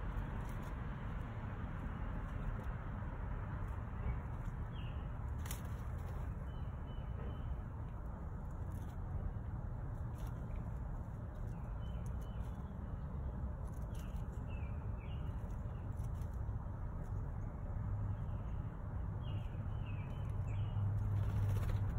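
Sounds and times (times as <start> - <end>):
steady low rumble: 0.0 - 21.9
small bird chirping: 10.2 - 16.4, 18.1 - 21.9.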